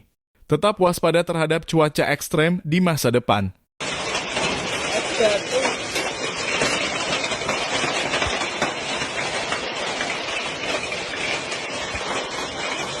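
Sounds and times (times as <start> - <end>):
hailstones striking hard surfaces: 3.8 - 13.0
heavy rain: 3.8 - 13.0.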